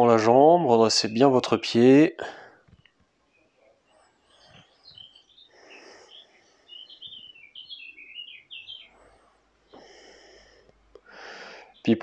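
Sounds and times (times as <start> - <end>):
small songbird singing: 2.7 - 10.6, 11.6 - 12.0.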